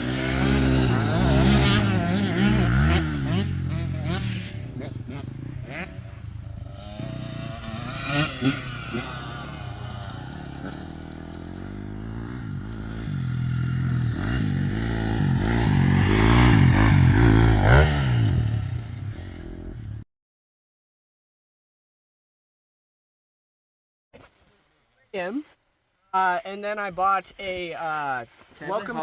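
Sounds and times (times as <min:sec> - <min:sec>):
dirt bike engine revving: 0:00.0 - 0:19.8.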